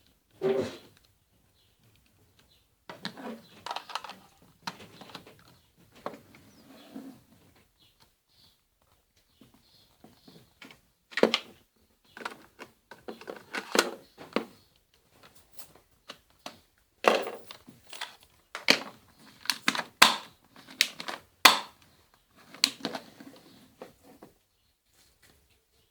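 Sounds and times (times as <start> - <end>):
handling rustle: 2.9 - 6.8, 12.1 - 25.5
pistol clicks and knocks: 19.5 - 21.8.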